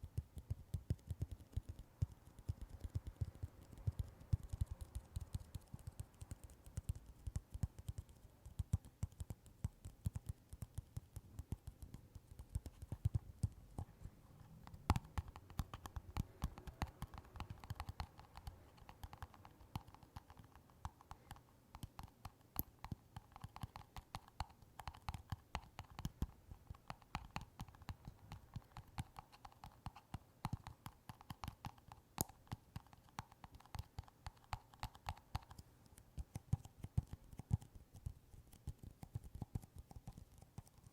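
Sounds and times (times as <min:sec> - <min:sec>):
rapid light tapping: 0:00.0 - 0:40.9.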